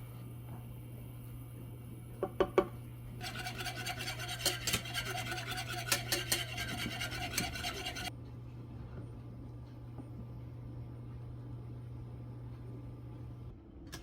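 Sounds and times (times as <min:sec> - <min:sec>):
steady low hum: 0:00.0 - 0:13.9
rasping and scraping with clicks: 0:03.2 - 0:08.1.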